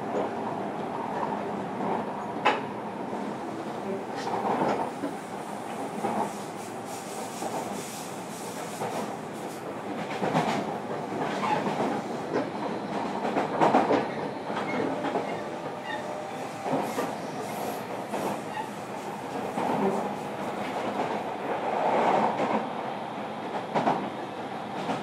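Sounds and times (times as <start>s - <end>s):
train wheels rumbling on rail: 0.0s - 25.0s
rail joint clacks and knocks: 4.2s - 6.3s, 9.9s - 16.0s.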